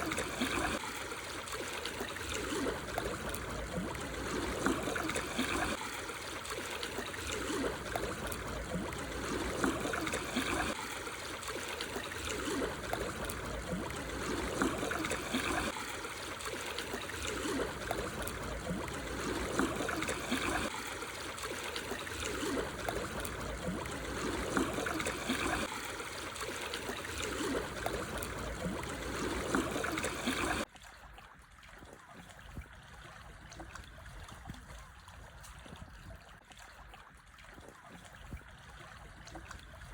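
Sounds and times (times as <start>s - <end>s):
small waves washing over stones: 0.0s - 30.7s.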